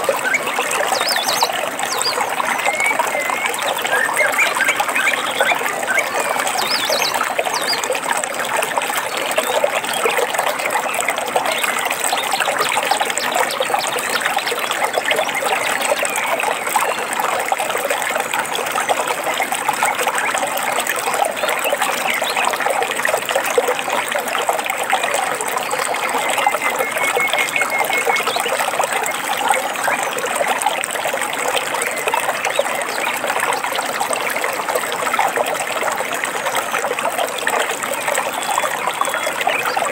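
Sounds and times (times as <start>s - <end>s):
water babbling over stones: 0.0s - 39.9s
faint bird chirps: 25.9s - 30.0s.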